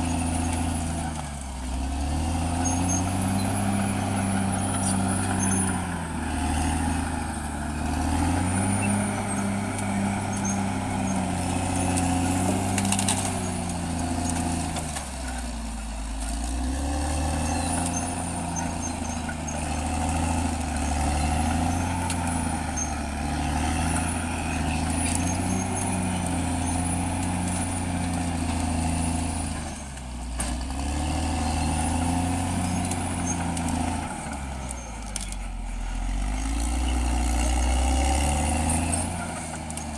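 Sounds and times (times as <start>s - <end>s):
bulldozer diesel engine under load: 0.0s - 39.9s
faint high squeal: 2.6s - 5.8s, 17.4s - 19.9s.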